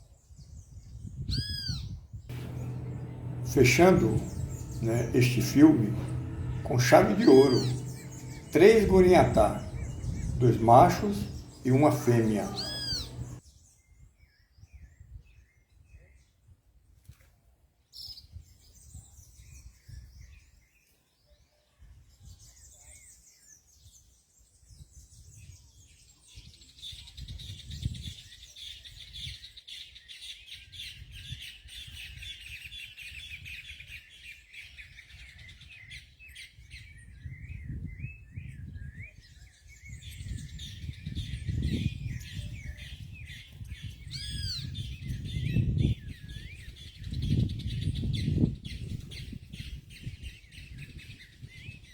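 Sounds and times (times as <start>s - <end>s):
low microphone rumble: 2.3s - 13.4s
songbirds chirping and singing: 2.3s - 13.4s.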